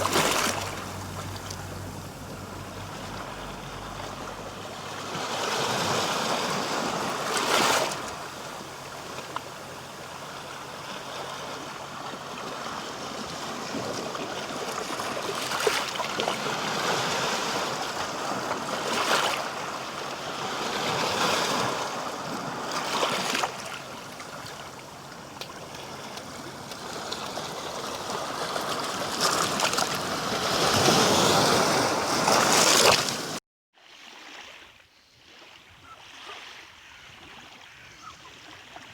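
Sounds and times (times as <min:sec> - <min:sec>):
rushing splashing water: 0:00.0 - 0:09.3.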